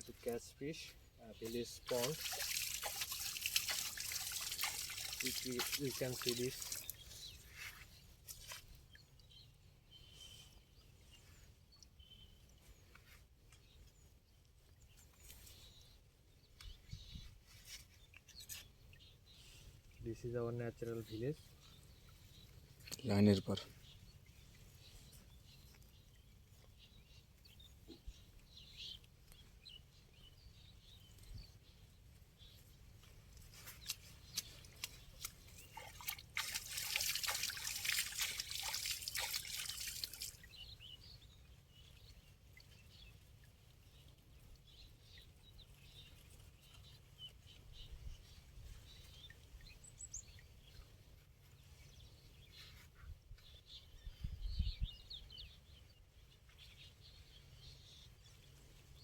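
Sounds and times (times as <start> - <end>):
birds chirping: 0.0 - 13.9, 18.0 - 43.2
water splashing: 1.4 - 7.1, 33.8 - 40.5
water dripping and trickling: 1.4 - 7.4, 33.0 - 44.8.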